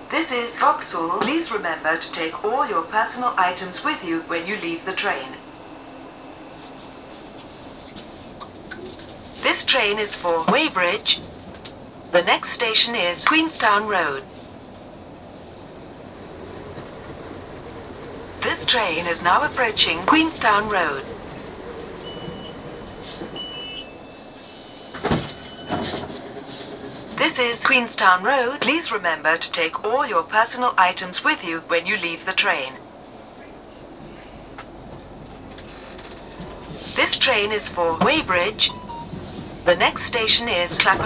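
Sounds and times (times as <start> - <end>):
train carriage low hiss: 0.1 - 41.0
clunk: 6.5 - 16.0, 24.8 - 27.0
high-pitched squeals: 18.4 - 21.0.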